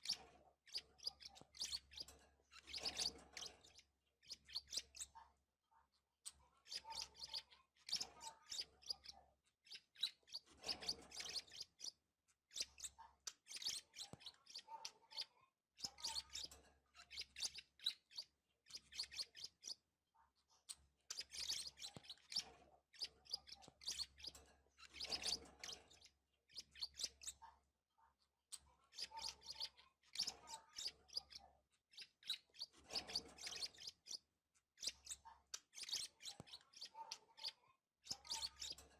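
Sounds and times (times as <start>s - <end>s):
budgerigars chirping: 0.0s - 5.1s, 9.7s - 12.0s, 12.6s - 19.8s, 21.1s - 27.4s, 32.0s - 34.2s, 34.8s - 38.8s.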